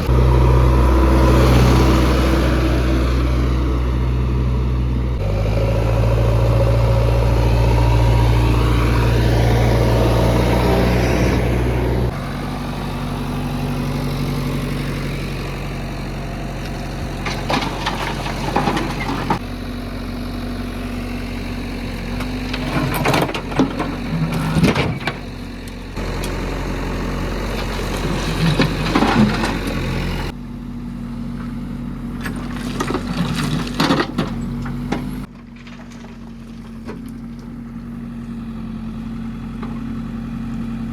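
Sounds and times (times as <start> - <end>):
diesel engine running: 0.0 - 40.9
clatter and scraping: 16.6 - 19.4, 22.1 - 26.4, 27.5 - 30.0, 32.2 - 37.6.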